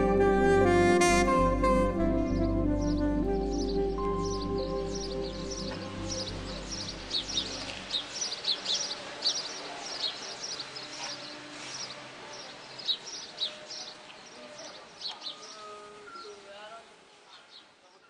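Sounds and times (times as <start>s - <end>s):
low music tones: 0.0s - 9.2s
small birds chirping: 2.3s - 18.0s.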